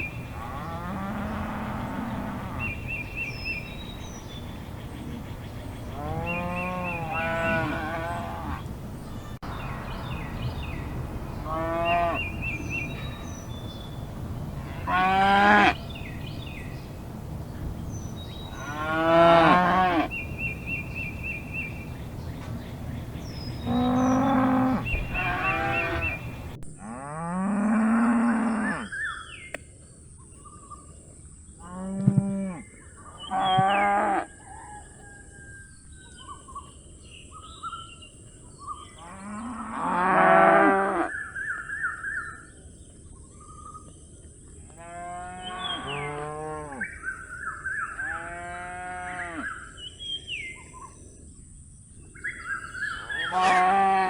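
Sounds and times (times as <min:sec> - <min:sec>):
calf mooing: 0:06.0 - 0:08.6, 0:14.5 - 0:15.8, 0:18.6 - 0:20.1, 0:23.6 - 0:26.2, 0:53.2 - 0:54.0.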